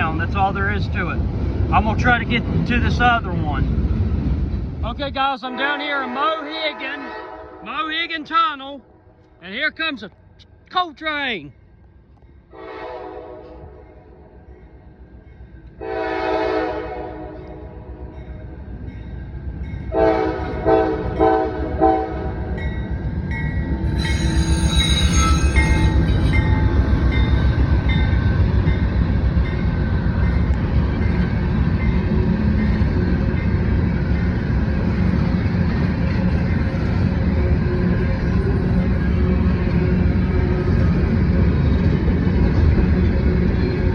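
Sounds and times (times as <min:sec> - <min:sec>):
train passing roar: 0:00.0 - 0:10.8, 0:11.5 - 0:43.9
locomotive horn blasts: 0:05.5 - 0:07.7, 0:12.5 - 0:13.6, 0:15.8 - 0:17.4, 0:19.9 - 0:22.4
metallic wheel squeal: 0:23.4 - 0:27.5.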